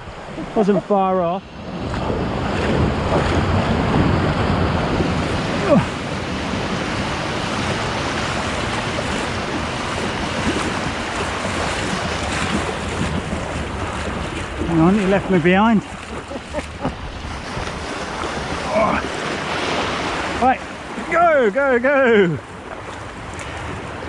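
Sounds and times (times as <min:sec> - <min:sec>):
surf breaking and rushing water: 0:00.0 - 0:24.0
wind buffeting microphone: 0:00.0 - 0:24.0.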